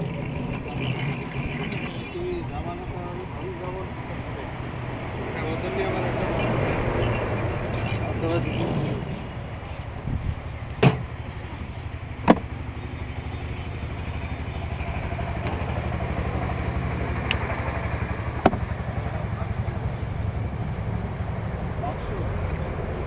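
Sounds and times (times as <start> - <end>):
engine running rumble: 0.0 - 23.0
sharp clicks or knocks: 10.8 - 11.1, 12.2 - 12.5.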